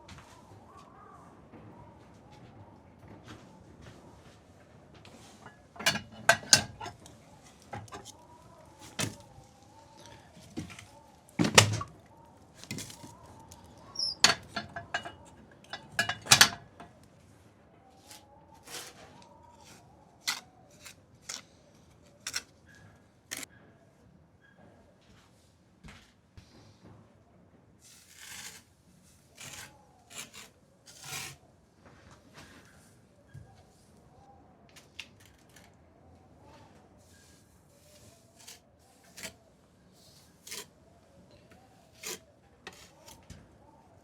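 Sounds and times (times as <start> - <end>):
knocks and clacks of objects: 4.6 - 17.0.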